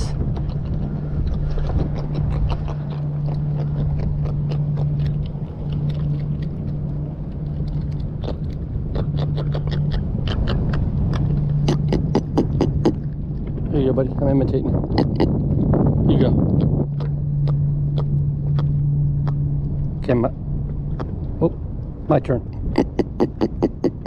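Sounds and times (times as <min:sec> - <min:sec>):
fish grunting and clicking: 0:00.0 - 0:13.7, 0:14.7 - 0:15.8, 0:16.4 - 0:20.0, 0:20.7 - 0:21.4, 0:22.4 - 0:24.0
steady low hum: 0:00.0 - 0:24.0.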